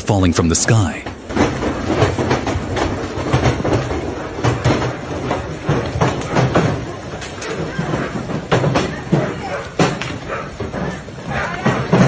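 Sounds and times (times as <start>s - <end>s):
hailstones clattering on hard surfaces: 1.1s - 10.0s.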